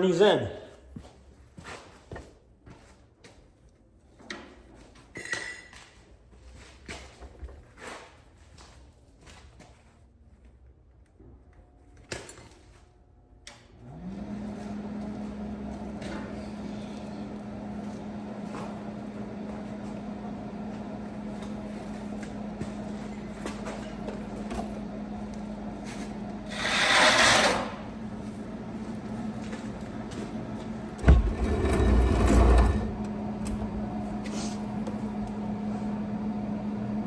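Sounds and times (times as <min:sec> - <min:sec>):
cooling fan whine and hum: 0:12.8 - 0:37.0.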